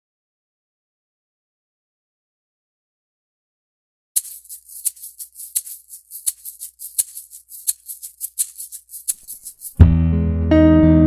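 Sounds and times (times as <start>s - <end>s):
shaker playing a steady rhythm: 4.2s - 9.9s.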